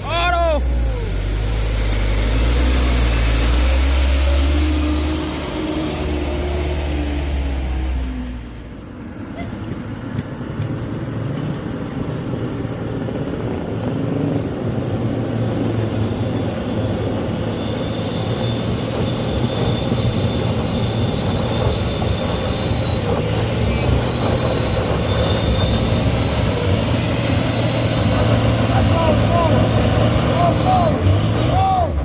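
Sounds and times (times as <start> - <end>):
truck diesel engine labouring: 0.0 - 10.5, 12.8 - 32.0
thin high squeal: 17.6 - 31.8.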